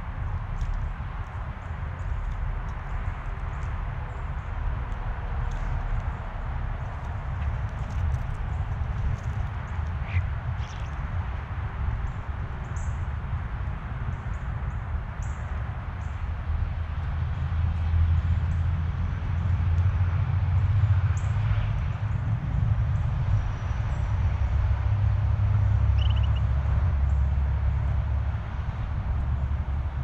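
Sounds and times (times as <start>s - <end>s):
steady low rumble: 0.0s - 30.0s
faint bird chirps: 25.9s - 26.5s
short quick bird trill: 26.0s - 26.4s.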